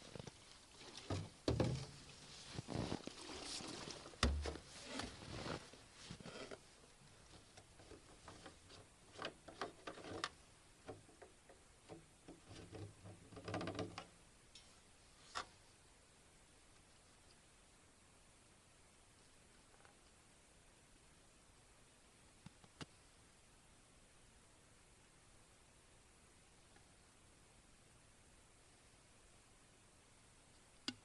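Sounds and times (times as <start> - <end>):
dull thumps: 0.9 - 3.0, 4.2 - 5.6.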